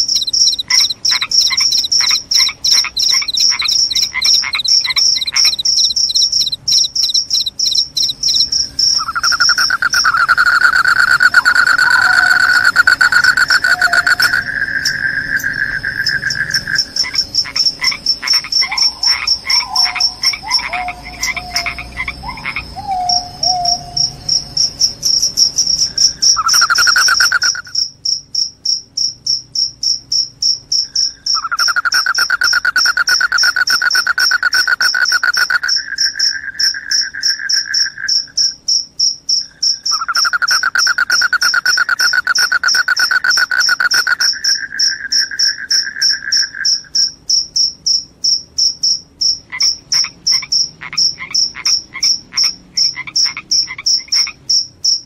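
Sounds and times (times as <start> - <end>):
crickets chirping high trill: 0.0 - 55.0
lower insect trill: 0.0 - 55.0
calls falling in pitch: 9.0 - 15.3.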